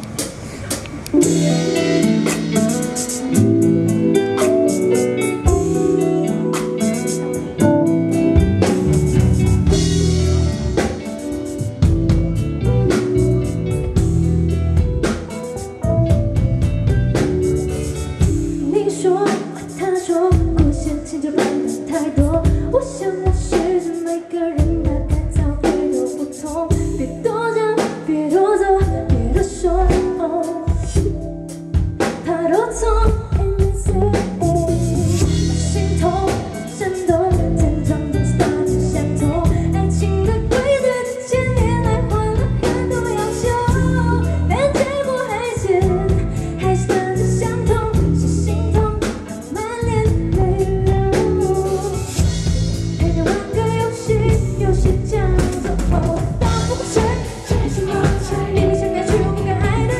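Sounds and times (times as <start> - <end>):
band with drums and guitar: 0.0 - 59.9
woman singing pop song: 18.2 - 59.9.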